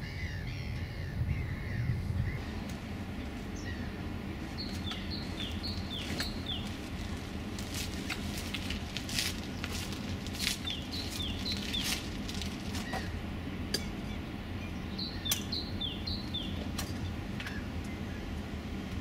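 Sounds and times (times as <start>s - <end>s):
low background hum: 0.0s - 19.0s
small bird chirping: 4.5s - 6.8s, 10.6s - 12.1s, 14.0s - 16.6s.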